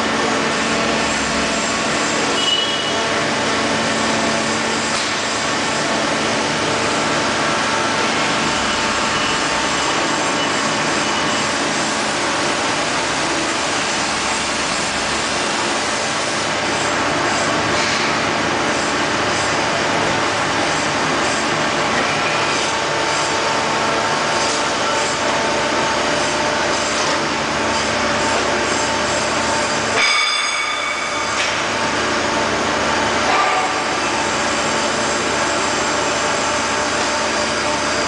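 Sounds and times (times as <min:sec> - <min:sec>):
grinder machine running: 0:00.0 - 0:38.0.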